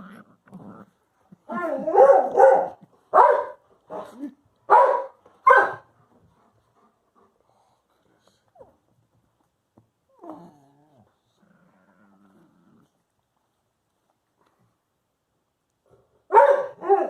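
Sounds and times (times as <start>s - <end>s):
dog whining and grumbling: 0.0s - 2.0s, 10.1s - 13.0s
dog barking: 1.7s - 4.1s, 4.7s - 5.9s, 16.3s - 17.0s.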